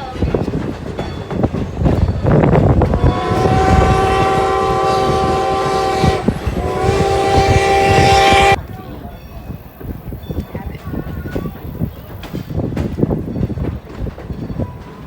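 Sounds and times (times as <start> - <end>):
train clanking and rumbling: 0.0 - 15.0
steam locomotive chime whistle: 2.2 - 8.6.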